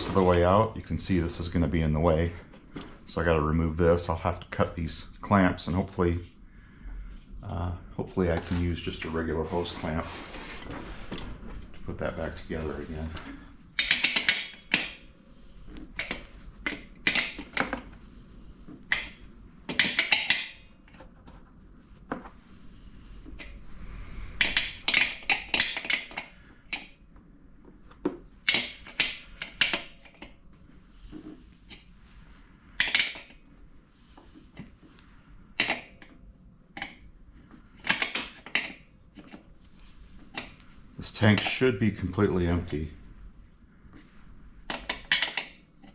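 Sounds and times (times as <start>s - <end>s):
metal scraping: 0.0s - 1.6s.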